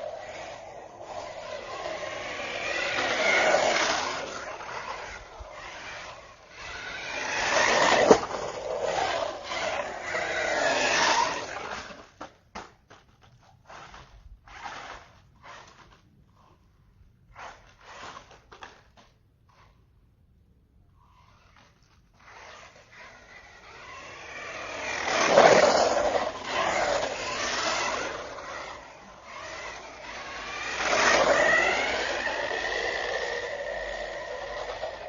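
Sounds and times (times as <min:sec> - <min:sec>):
rc car motor whine: 0:00.0 - 0:12.4, 0:13.0 - 0:19.8, 0:20.9 - 0:35.0
short scrapes and clicks: 0:00.0 - 0:20.0, 0:20.9 - 0:35.0.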